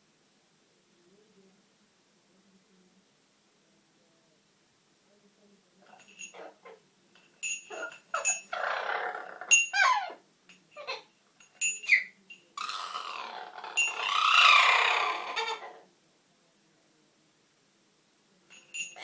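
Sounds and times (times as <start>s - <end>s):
parrot squeaks: 9.5s - 10.2s, 11.8s - 15.7s
parrot harsh squawks: 9.7s - 10.2s, 11.9s - 15.8s.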